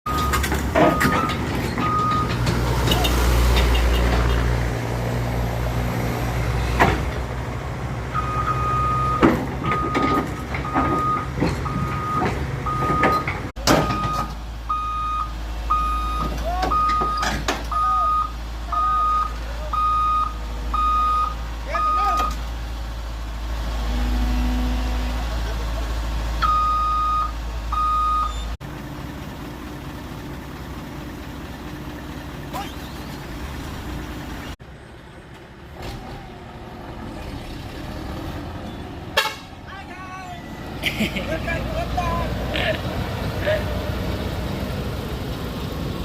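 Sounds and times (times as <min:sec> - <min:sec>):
excavator diesel engine running: 0:00.1 - 0:46.0
travel alarm beeping: 0:08.2 - 0:13.2, 0:13.8 - 0:22.4, 0:26.4 - 0:28.5.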